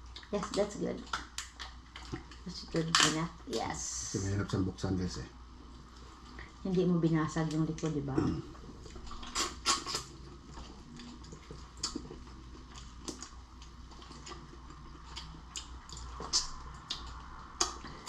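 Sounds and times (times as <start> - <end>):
lobster shell cracking: 9.2 - 10.1.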